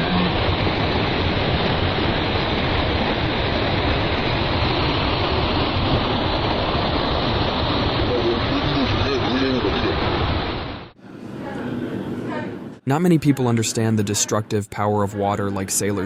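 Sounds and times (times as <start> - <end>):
floodwater rushing roar: 0.0 - 11.6.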